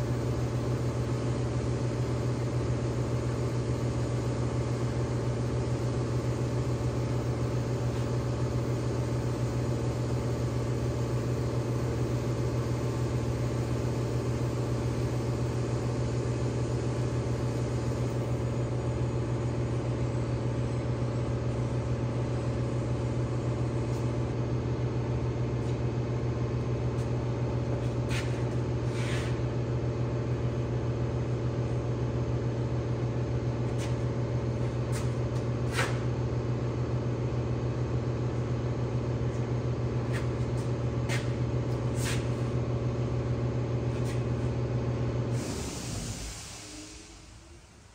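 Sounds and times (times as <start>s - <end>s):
low machine hum: 0.0s - 47.9s
faint short hisses: 28.1s - 29.4s, 35.7s - 36.0s, 42.0s - 42.4s.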